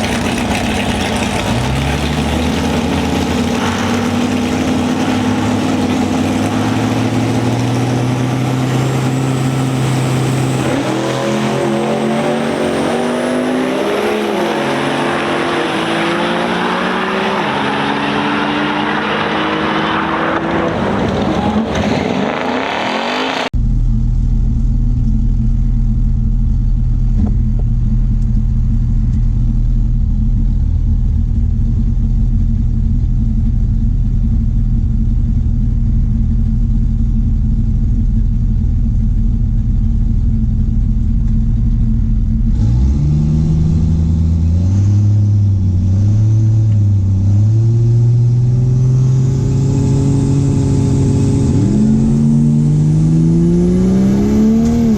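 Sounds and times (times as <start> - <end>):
vehicle engine idling: 0.0 - 10.6, 23.6 - 42.6
engine revving: 0.0 - 23.6, 42.3 - 54.9
loud vehicle passing: 1.4 - 23.5.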